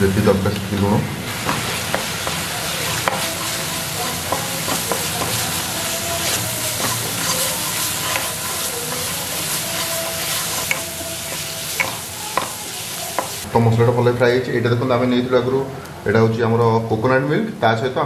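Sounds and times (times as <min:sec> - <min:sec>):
masala sizzling in oil: 0:00.0 - 0:13.5
wooden spatula scraping a pan: 0:01.4 - 0:13.4.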